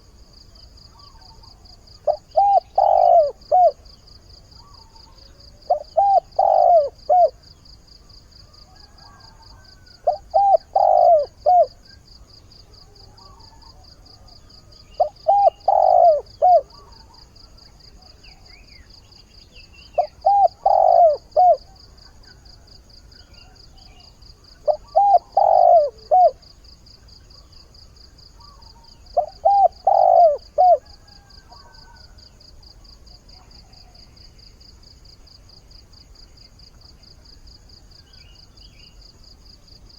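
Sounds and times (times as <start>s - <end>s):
dove cooing: 1.0s - 3.9s, 4.6s - 7.5s, 8.6s - 12.0s, 12.7s - 18.2s, 19.9s - 26.5s, 28.4s - 32.2s.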